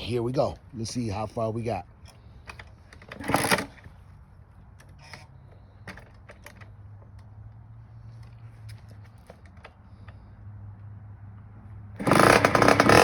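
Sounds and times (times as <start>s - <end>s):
dirt bike engine idling: 12.0s - 13.0s.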